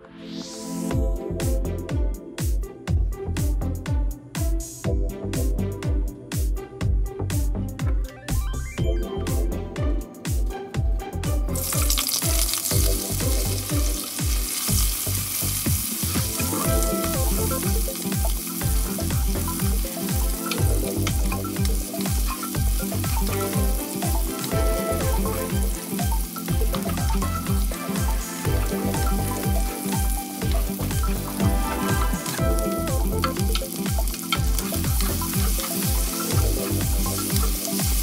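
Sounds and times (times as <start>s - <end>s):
music with steady bass beat: 0.9s - 38.0s
onions sizzling in hot oil: 11.6s - 38.0s.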